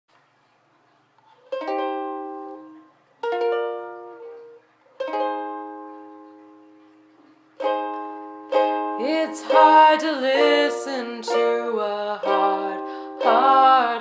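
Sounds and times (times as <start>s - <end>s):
ukulele strumming chords: 1.4s - 14.0s.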